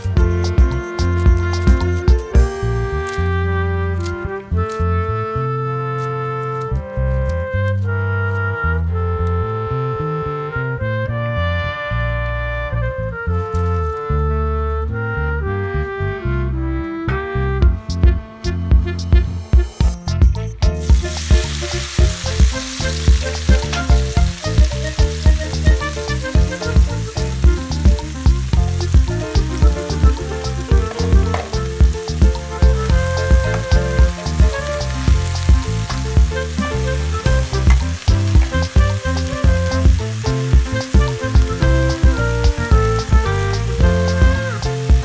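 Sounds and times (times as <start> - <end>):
music with steady beat: 0.0 - 3.4, 17.1 - 45.0
food sizzling in oil: 20.6 - 45.0.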